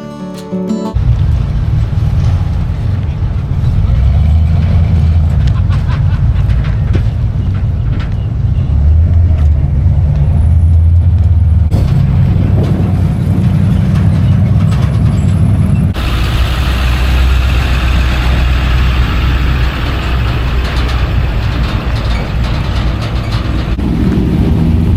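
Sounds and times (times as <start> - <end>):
truck engines rumbling: 0.0 - 24.9
hiss: 16.0 - 21.4.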